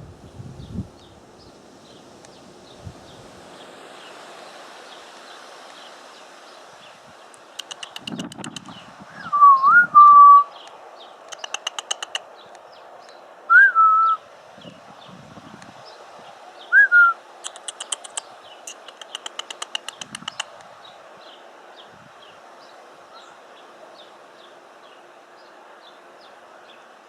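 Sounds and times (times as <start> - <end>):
hummingbird chattering chip notes: 7.6 - 8.8, 11.3 - 12.2, 17.4 - 20.6
short whistled notes: 13.5 - 14.2.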